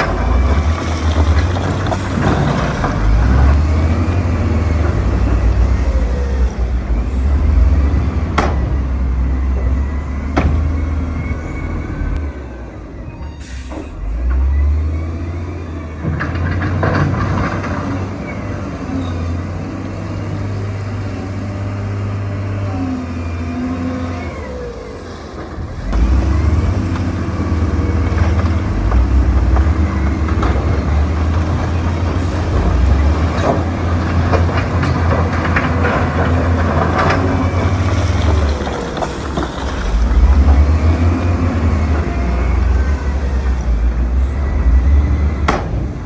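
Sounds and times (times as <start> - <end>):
diesel earthmover engine drone: 0.0 - 46.0
knocks and clanks: 25.2 - 42.1.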